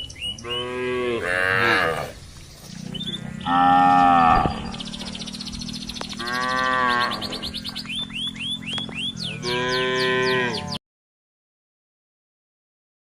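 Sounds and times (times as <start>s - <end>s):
cattle mooing: 0.4s - 7.9s, 9.2s - 10.8s.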